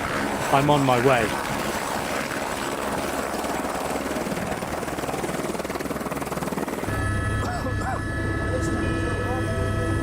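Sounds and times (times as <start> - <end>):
helicopter rotor chopping: 0.0 - 10.0
low hum with whining tones: 6.9 - 10.0.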